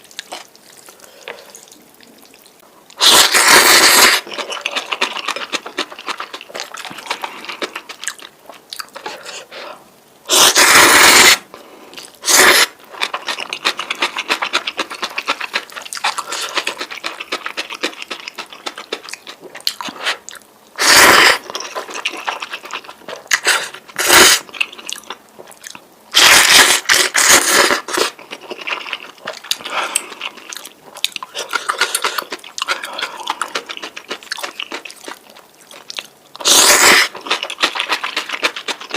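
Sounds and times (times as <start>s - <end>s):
wet chewing and mouth clicks: 0.0s - 9.5s, 11.9s - 38.9s
noodle slurps: 3.0s - 8.0s, 9.0s - 19.1s, 20.8s - 24.5s, 26.2s - 30.5s, 36.4s - 38.9s.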